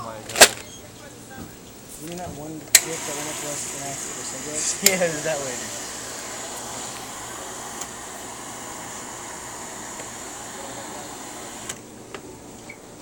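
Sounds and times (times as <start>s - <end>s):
steady whirring: 2.7s - 11.9s.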